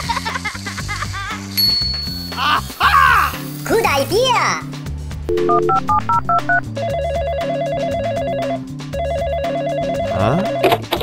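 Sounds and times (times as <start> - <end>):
background music: 0.0 - 11.0
phone dialing beeps: 5.3 - 11.0
telephone ringing: 5.3 - 11.0.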